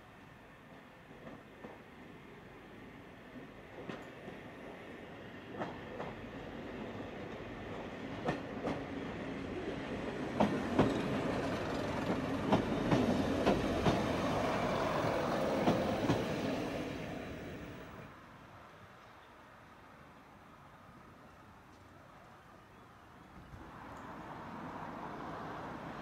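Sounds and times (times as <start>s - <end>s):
diesel train running past: 0.2s - 18.2s, 23.6s - 26.0s.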